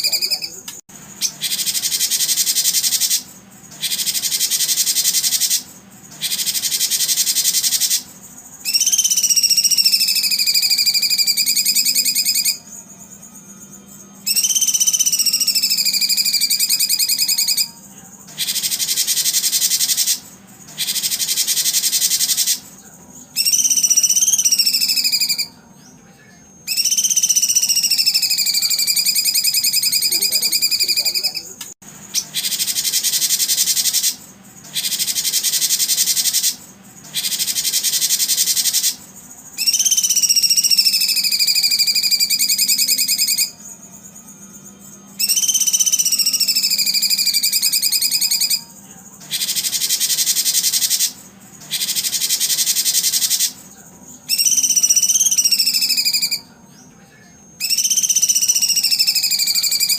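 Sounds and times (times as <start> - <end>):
shrill animal calls: 0.0 - 0.6, 1.2 - 12.8, 14.2 - 17.8, 18.4 - 22.7, 23.4 - 25.6, 26.7 - 43.7, 45.2 - 53.6, 54.3 - 56.5, 57.6 - 59.9
slowly falling whistle: 8.7 - 12.6, 54.3 - 56.4, 57.6 - 59.9.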